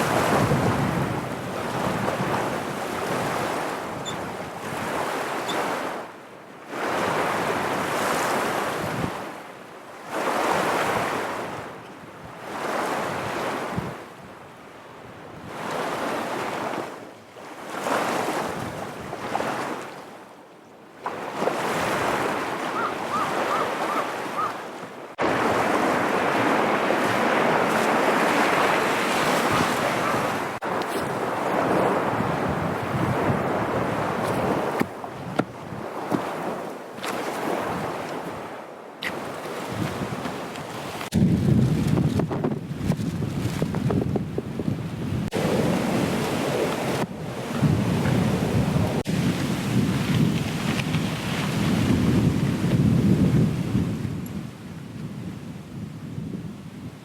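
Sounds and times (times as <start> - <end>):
wind blowing over microphone: 0.0 - 5.6, 21.0 - 57.0
lake water washing on shore: 0.0 - 20.3, 20.9 - 54.2.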